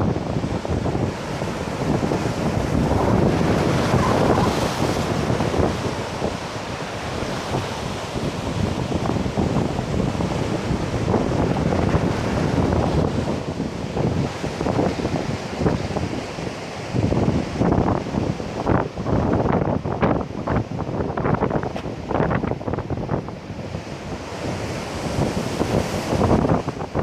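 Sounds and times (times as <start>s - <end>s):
surf breaking on beach: 0.0s - 18.8s
wind buffeting microphone: 0.0s - 27.0s.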